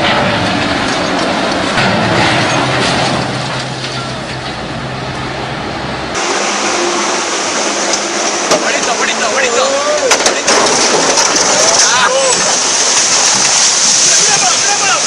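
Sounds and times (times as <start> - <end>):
vehicle engine low hum: 0.0 - 10.2
loud rough noise: 0.0 - 15.0.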